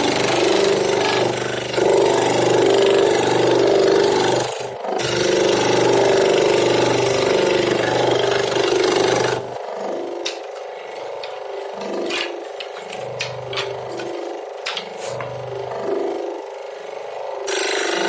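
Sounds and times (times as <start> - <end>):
power tool running on wood: 0.0 - 18.0
clicks and rubbing on wood: 10.3 - 15.4.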